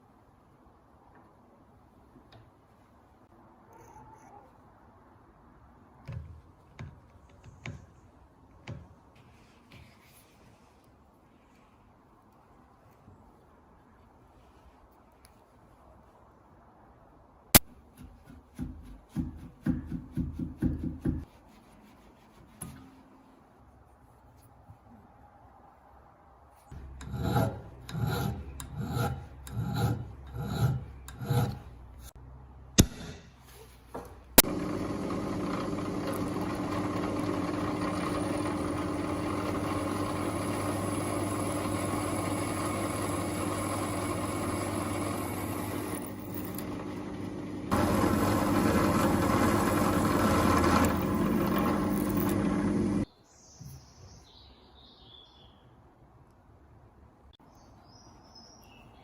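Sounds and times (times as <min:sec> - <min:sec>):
scraping rusty metal by hand: 0:26.7 - 0:32.1
electric tool grinding: 0:26.8 - 0:31.7, 0:34.4 - 0:53.0.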